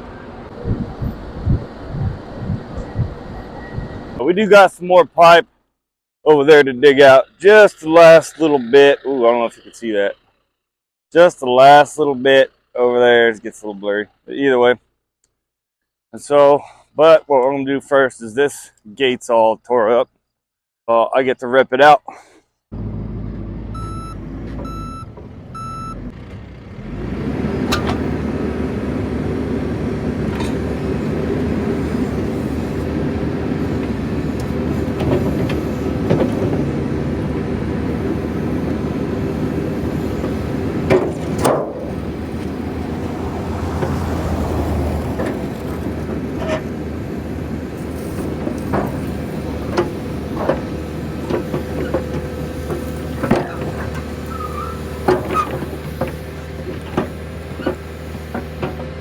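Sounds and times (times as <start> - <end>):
diesel engine under load: 0.0 - 5.6, 6.3 - 15.0, 22.7 - 59.0
reversing alarm beeps: 2.8 - 4.2, 23.8 - 26.0
metallic clanks and knocks: 40.2 - 42.5, 48.2 - 54.2, 54.9 - 58.9.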